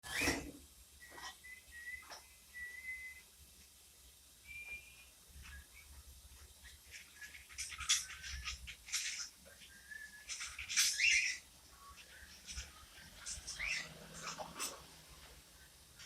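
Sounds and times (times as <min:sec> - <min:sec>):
cockatiel whistling: 0:01.0 - 0:03.2, 0:04.4 - 0:05.9, 0:09.6 - 0:12.0.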